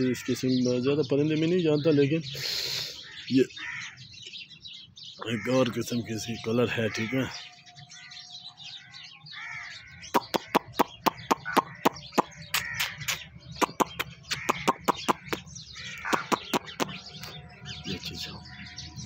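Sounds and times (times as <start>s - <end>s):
softer bird chirping: 0.9s - 19.0s
sharp clicky bird chirps: 8.0s - 19.0s.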